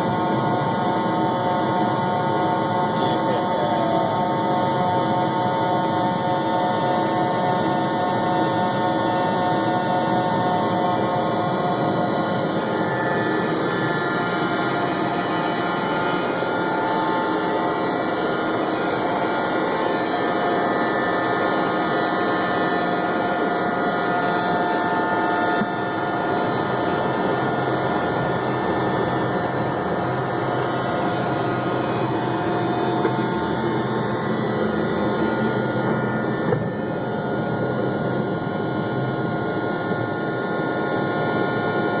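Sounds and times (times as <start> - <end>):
jet engine whining tones: 0.0 - 42.0
jet engines roaring: 0.2 - 42.0.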